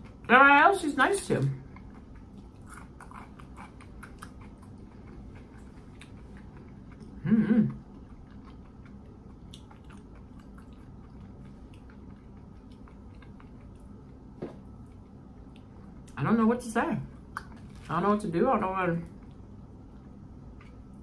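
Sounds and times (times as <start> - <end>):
wet chewing with mouth clicks: 1.6 - 16.2, 17.2 - 17.9, 19.1 - 21.0
person humming: 7.2 - 7.8.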